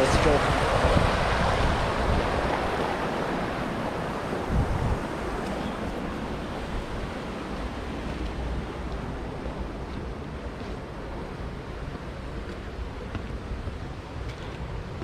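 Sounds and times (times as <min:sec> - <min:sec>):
waterfall rushing: 0:00.0 - 0:09.8
wind rumble on microphone: 0:00.0 - 0:15.0.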